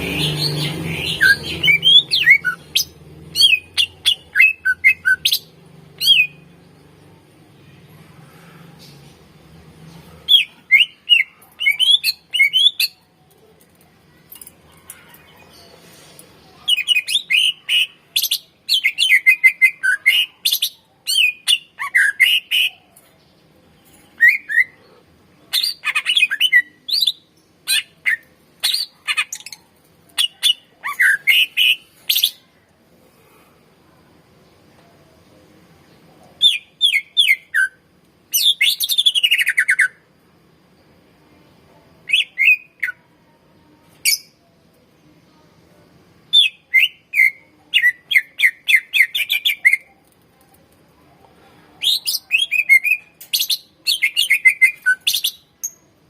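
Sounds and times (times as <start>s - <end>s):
bird singing chirps and whistles: 36.4s - 40.0s, 42.1s - 43.0s, 46.3s - 49.8s, 51.8s - 55.8s.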